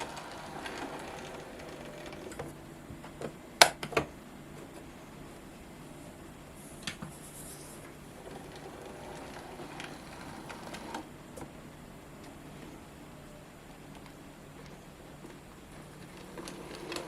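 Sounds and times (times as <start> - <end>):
model train motor hum: 0.0 - 2.7, 8.0 - 11.2, 15.3 - 17.0
model train wheel rumble: 0.0 - 2.8, 7.4 - 11.2, 14.0 - 17.0.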